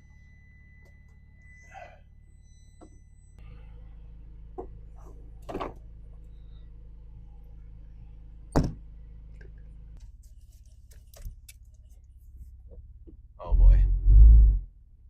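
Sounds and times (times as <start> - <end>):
steady low hum: 11.8 - 15.0.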